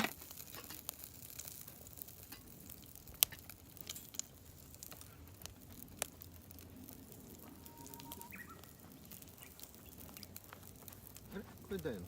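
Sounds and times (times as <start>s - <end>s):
fire popping and crackling: 0.0s - 12.0s
meat sizzling on charcoal fire: 0.0s - 12.0s
short faint tone: 7.5s - 8.6s.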